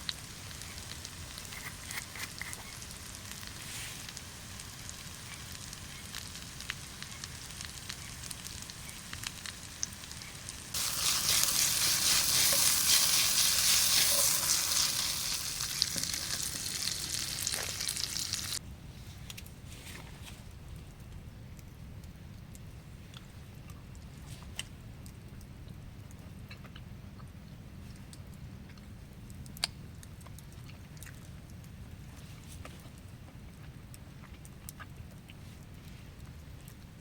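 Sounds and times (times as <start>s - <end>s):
loud sizzling hiss: 0.0s - 18.6s
campfire crackling and popping: 5.0s - 18.6s.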